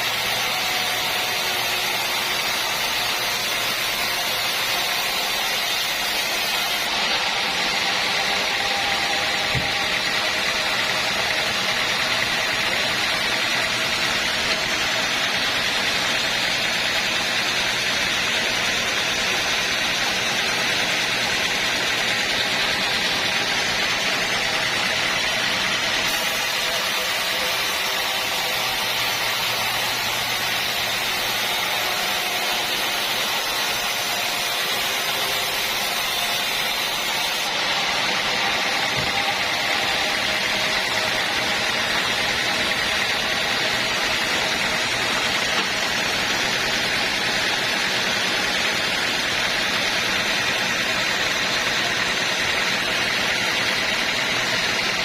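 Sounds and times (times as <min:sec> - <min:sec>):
steady machinery noise: 0:00.0 - 0:55.0.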